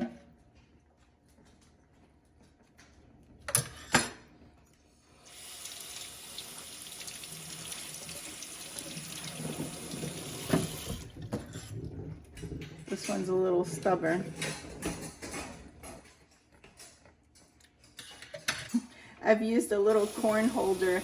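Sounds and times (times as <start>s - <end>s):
kitchen tap running: 5.2s - 11.7s, 19.7s - 21.0s.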